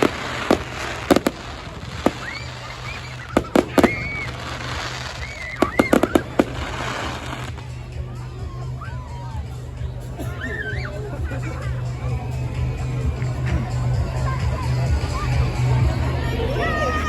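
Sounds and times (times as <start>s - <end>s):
fireworks bangs: 0.0s - 7.7s
high whistling fireworks: 0.0s - 7.8s.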